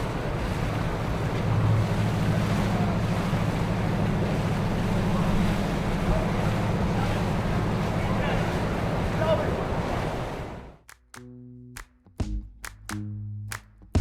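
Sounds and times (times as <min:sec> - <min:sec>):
boat engine humming: 0:00.0 - 0:10.8
water wash: 0:00.0 - 0:10.8
wind buffeting microphone: 0:00.0 - 0:10.8.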